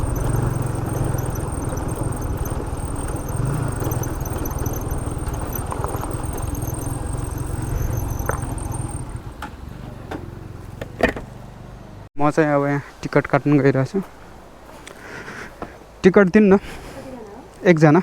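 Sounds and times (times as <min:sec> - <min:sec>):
motorcycle engine idling: 0:00.0 - 0:11.8.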